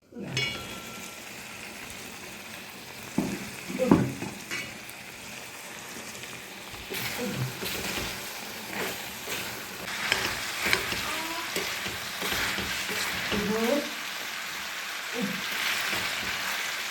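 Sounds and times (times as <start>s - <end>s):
food sizzling in a pan: 0.2s - 16.9s
utensil knocking against pan: 3.2s - 4.4s.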